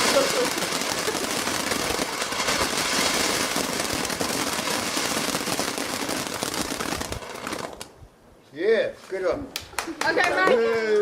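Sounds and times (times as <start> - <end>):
firework crackling: 0.0 - 8.1.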